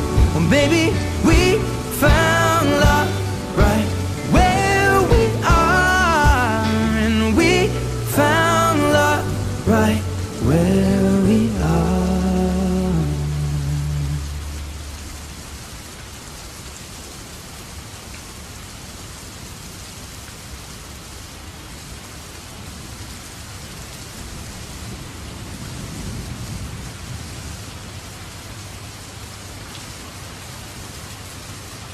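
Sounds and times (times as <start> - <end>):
low rumble: 0.0 - 15.4
steady rain falling: 0.0 - 31.9.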